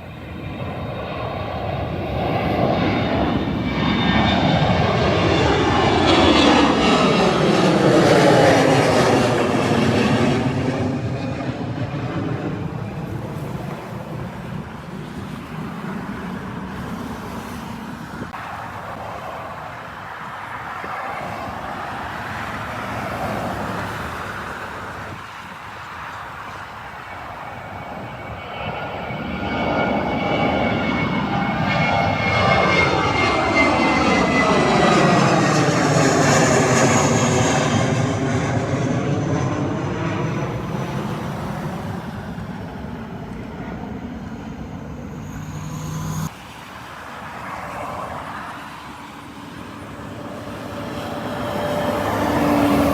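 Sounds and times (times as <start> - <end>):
jet airliner passing: 0.0 - 52.9.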